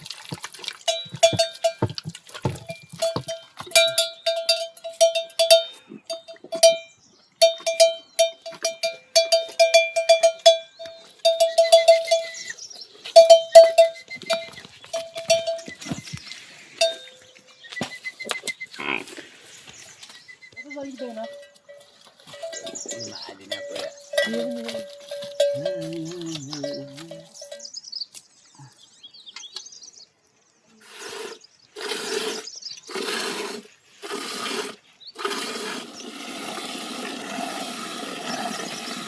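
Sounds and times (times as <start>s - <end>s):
metal neck bell clanking: 0.9s - 12.4s, 13.2s - 14.0s, 15.0s - 15.9s, 16.8s - 17.3s, 21.2s - 27.7s.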